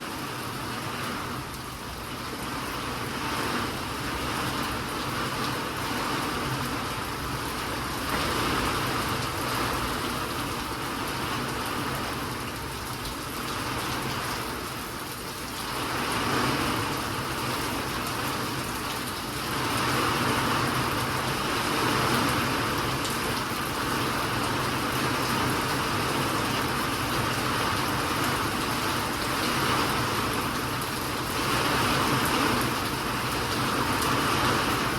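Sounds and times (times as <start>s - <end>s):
steady rainfall: 0.0s - 34.9s.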